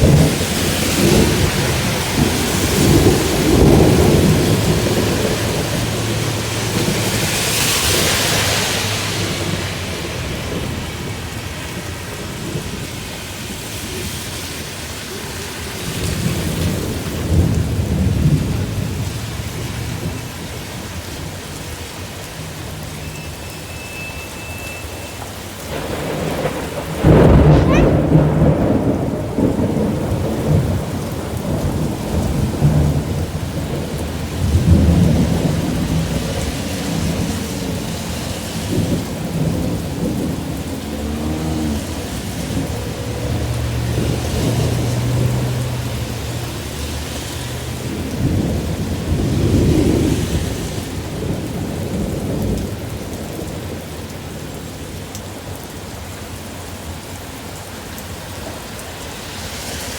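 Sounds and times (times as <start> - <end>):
heavy rain falling: 0.0 - 59.9
deep rumbling: 38.6 - 49.9.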